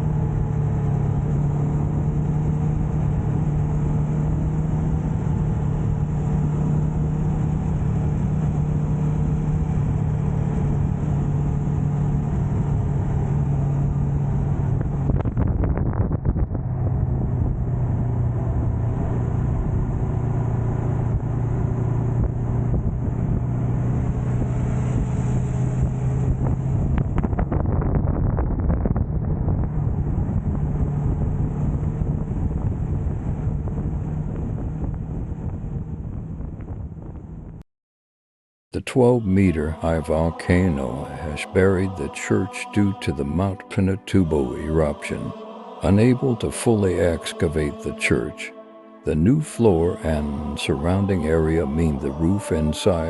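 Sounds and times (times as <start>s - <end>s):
wind buffeting microphone: 9.6s - 37.6s.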